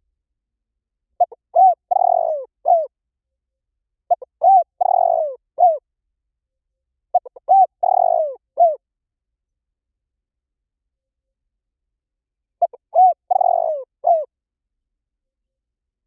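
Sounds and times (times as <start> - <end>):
dove cooing: 1.2 - 2.9, 4.1 - 5.8, 7.1 - 8.8, 12.6 - 14.3.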